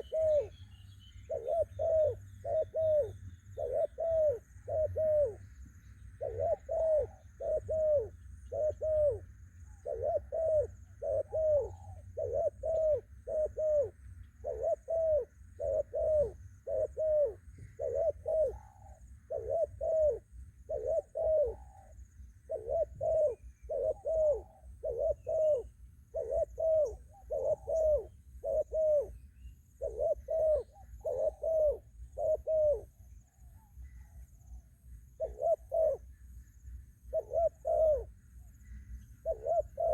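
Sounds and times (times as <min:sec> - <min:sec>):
dove cooing: 0:00.0 - 0:36.2, 0:36.9 - 0:39.9.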